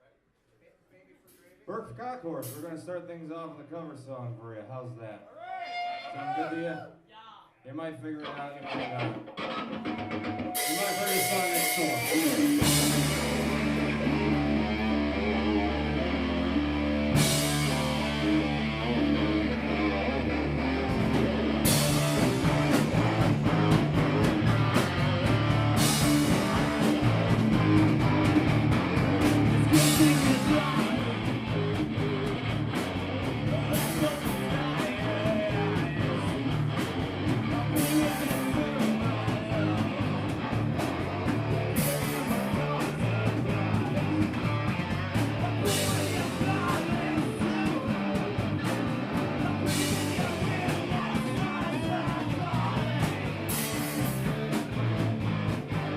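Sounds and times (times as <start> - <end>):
drums: 0.4 - 55.9
bass guitar: 8.2 - 55.9
distorted electric guitar: 8.2 - 55.9
person singing: 10.6 - 23.8, 29.1 - 32.5, 33.3 - 40.6, 41.5 - 55.2.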